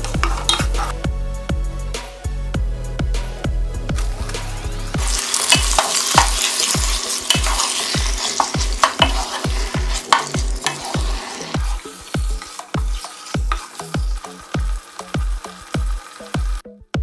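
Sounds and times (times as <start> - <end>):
wooden spatula scraping: 0.0 - 0.9, 4.0 - 16.3
background music with thudding beat: 0.0 - 17.0
chicken sizzling in oil: 5.0 - 16.6.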